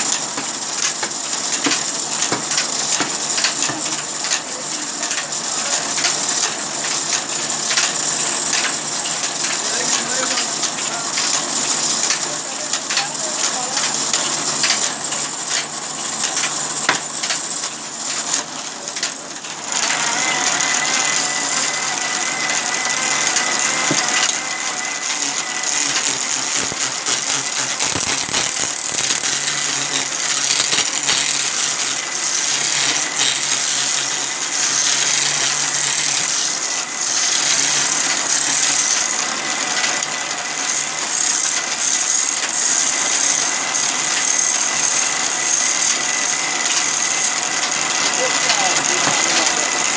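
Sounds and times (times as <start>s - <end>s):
sawmill saw running: 7.6s - 49.9s
steady high whine: 22.8s - 32.1s
metallic rattling: 25.3s - 33.9s.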